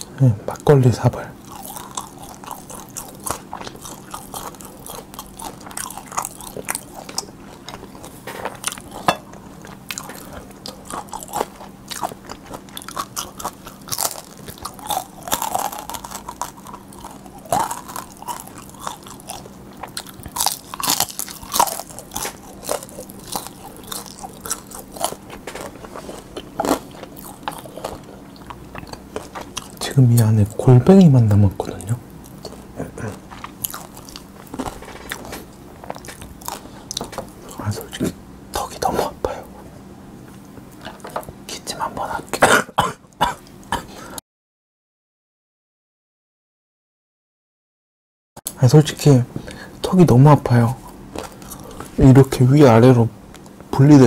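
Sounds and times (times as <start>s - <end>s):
wet chewing: 1.4s - 30.3s, 31.6s - 38.1s, 50.9s - 52.0s
crisp crunches: 11.0s - 28.1s.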